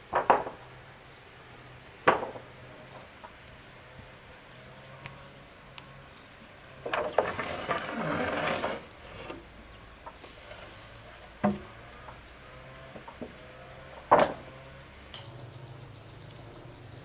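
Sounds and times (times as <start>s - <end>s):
wooden pieces knocking: 0.1s - 0.6s, 2.1s - 3.1s
scraping and rustling: 6.8s - 12.1s.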